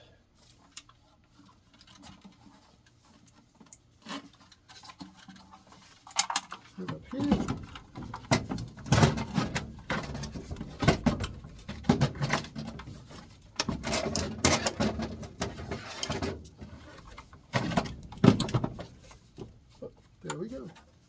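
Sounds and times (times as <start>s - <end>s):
metal parts clunking and scraping: 1.7s - 21.0s.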